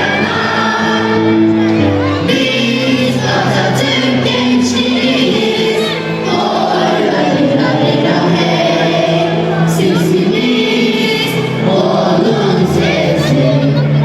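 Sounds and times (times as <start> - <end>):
choir singing: 0.0 - 14.0.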